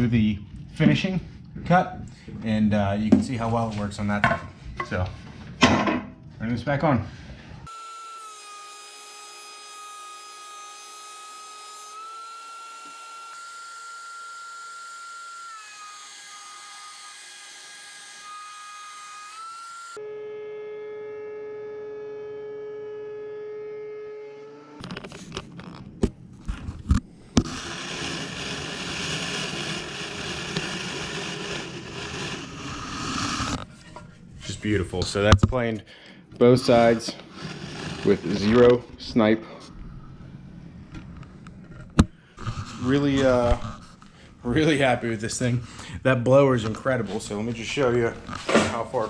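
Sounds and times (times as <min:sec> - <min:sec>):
board being planed: 0:07.7 - 0:20.0, 0:27.4 - 0:33.6, 0:37.2 - 0:38.7
thickness planer motor whine: 0:07.7 - 0:25.1, 0:27.4 - 0:33.6.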